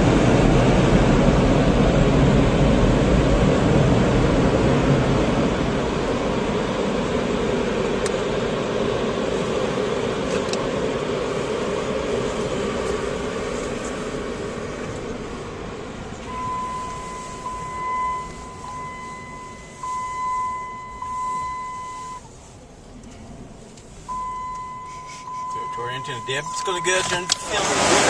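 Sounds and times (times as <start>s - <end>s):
car wash machinery rushing: 0.0s - 28.0s
high electronic tone: 16.2s - 22.3s, 24.1s - 27.6s.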